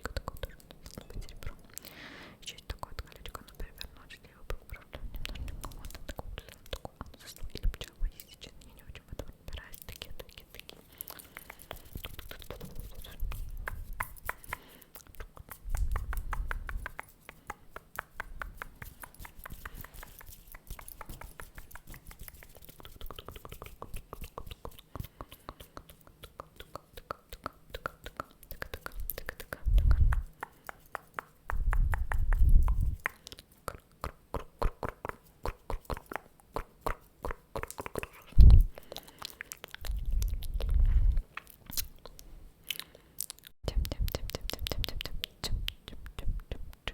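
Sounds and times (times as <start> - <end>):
wet lip and tongue clicks: 0.0 - 1.9, 2.7 - 46.9
person whispering: 0.0 - 17.8.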